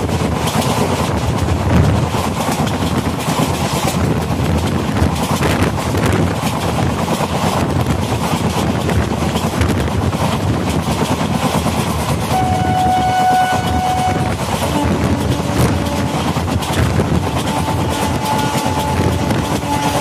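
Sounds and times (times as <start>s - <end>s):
train wind and wheels rushing: 0.0s - 20.0s
train horn: 12.3s - 16.4s, 17.1s - 20.0s.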